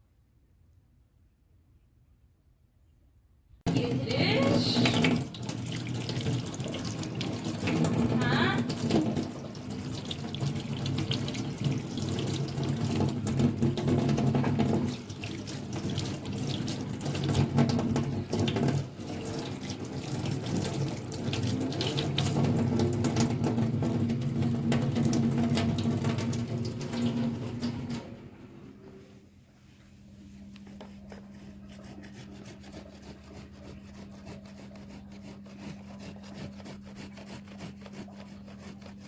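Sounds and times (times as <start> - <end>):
small knocks of washing: 3.7 - 28.3
water running from a tap: 3.7 - 28.3.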